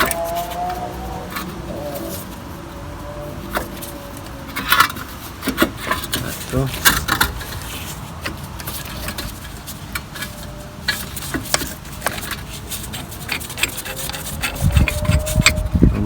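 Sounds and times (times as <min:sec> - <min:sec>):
small metallic clicks and ticks: 0:03.2 - 0:15.7.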